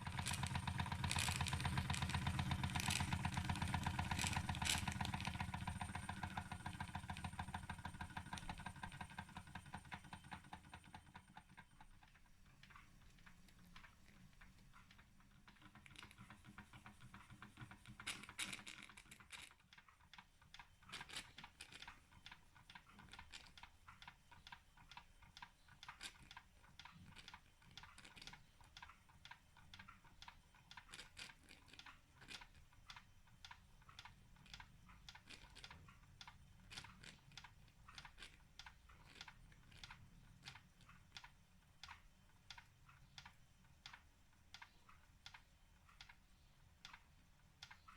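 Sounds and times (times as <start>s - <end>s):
model steam engine ticking and chuffing: 0.0s - 12.5s, 15.0s - 19.2s.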